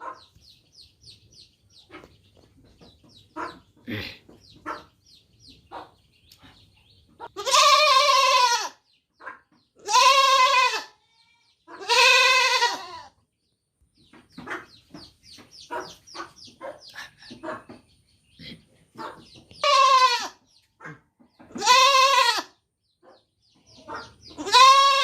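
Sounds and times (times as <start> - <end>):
goat bleating: 7.2 - 8.8, 9.8 - 13.1, 19.6 - 20.4, 21.5 - 22.6, 24.4 - 25.0.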